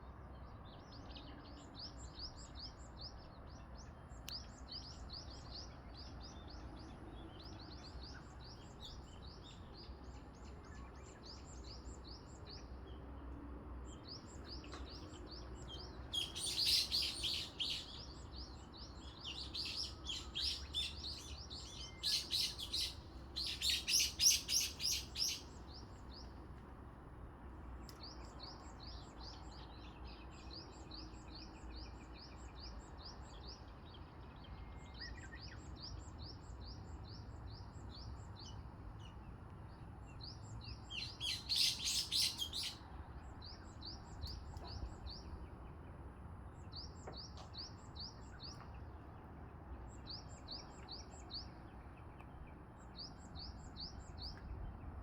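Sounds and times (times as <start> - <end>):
nearby bird singing: 13.9 - 26.4, 40.1 - 42.8
birds chirping: 14.0 - 26.4, 40.2 - 42.8.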